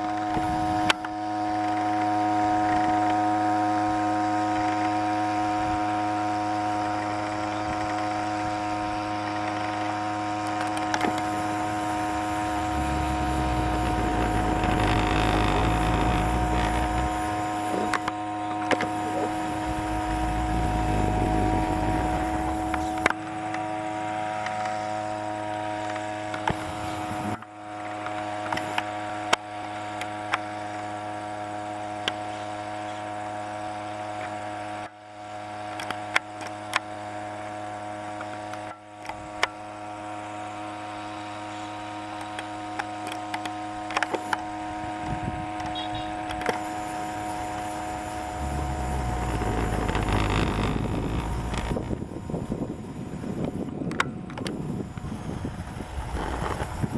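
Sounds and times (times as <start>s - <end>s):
small boat motor humming: 0.1s - 1.2s, 10.3s - 24.9s, 26.4s - 27.4s, 40.0s - 56.9s
rushing noise: 11.1s - 18.1s.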